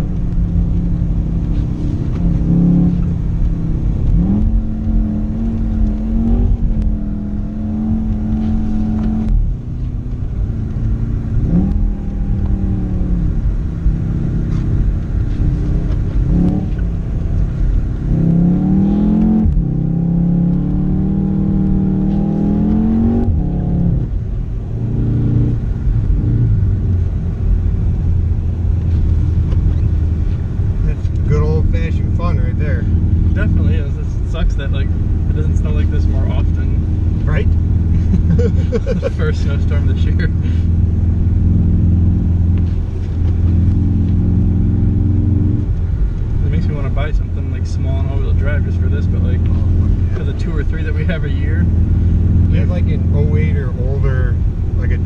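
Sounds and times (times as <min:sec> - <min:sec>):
car engine revving: 0:00.0 - 0:55.0
road and tyre rumble: 0:00.0 - 0:55.0.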